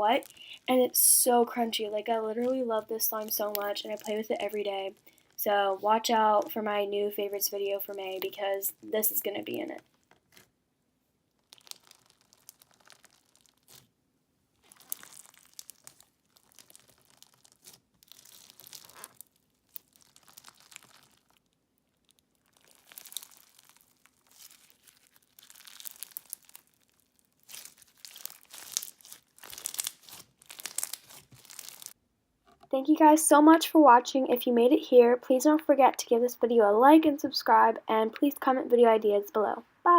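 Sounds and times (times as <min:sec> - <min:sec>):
crunchy slime crackling and popping: 0:00.2 - 0:05.4, 0:11.3 - 0:32.0.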